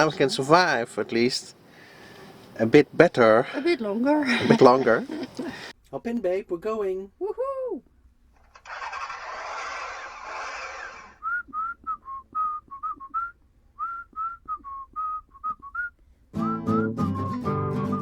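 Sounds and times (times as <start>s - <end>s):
whistled melody: 11.2s - 18.0s.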